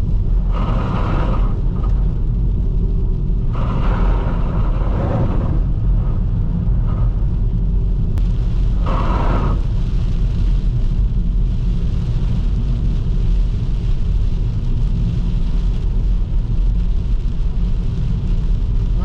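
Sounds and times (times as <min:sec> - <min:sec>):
car engine and road rumble: 0:00.0 - 0:19.0
tyres hissing on wet road: 0:00.2 - 0:02.3, 0:03.0 - 0:05.7, 0:08.2 - 0:19.0.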